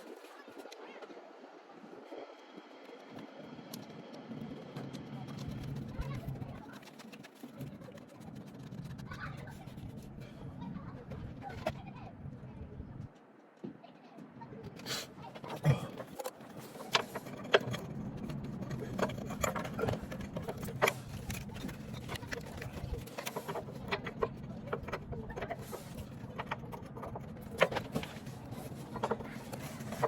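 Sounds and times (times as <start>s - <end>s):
metallic clicks and clanks: 16.0s - 30.0s.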